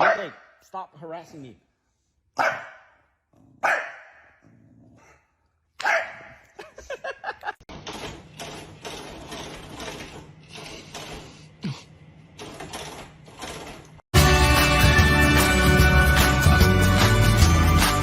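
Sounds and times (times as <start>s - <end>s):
dog barking: 0.0s - 0.5s, 2.4s - 4.4s, 5.8s - 6.5s.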